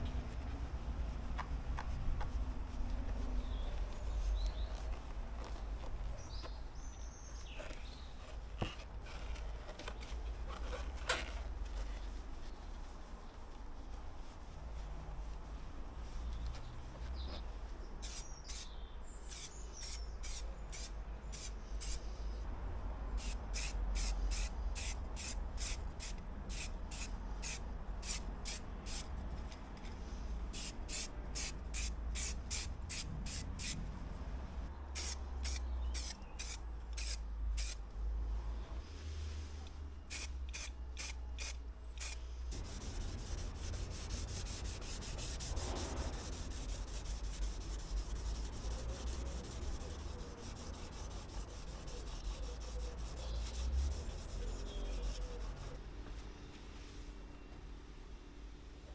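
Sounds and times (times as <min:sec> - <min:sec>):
spray can hissing: 0:23.2 - 0:29.0, 0:30.6 - 0:33.8, 0:35.0 - 0:37.8, 0:40.1 - 0:55.8.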